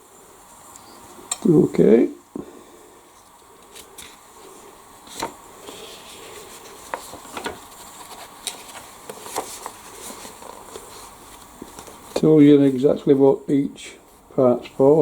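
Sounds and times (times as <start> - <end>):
paper booklet pages turning: 3.2 - 12.3.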